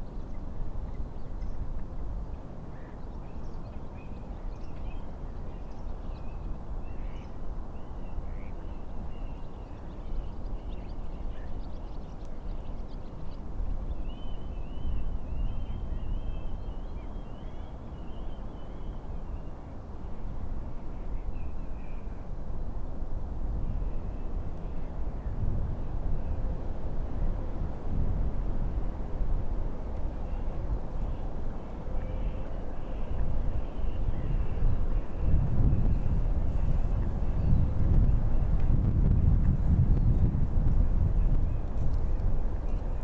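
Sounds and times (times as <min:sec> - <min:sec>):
wind: 0:00.0 - 0:43.0.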